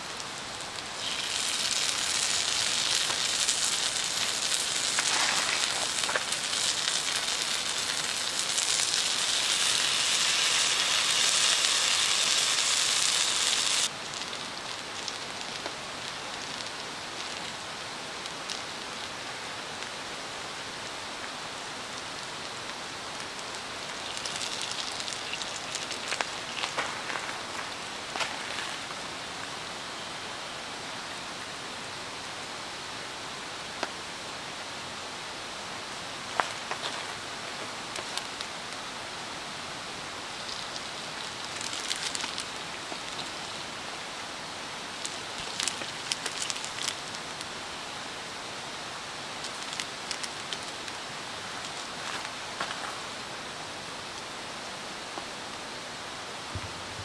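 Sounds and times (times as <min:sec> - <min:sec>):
food sizzling in a frying pan: 0:00.0 - 0:16.7, 0:23.3 - 0:27.0
crackles: 0:00.0 - 0:30.2, 0:35.9 - 0:56.9.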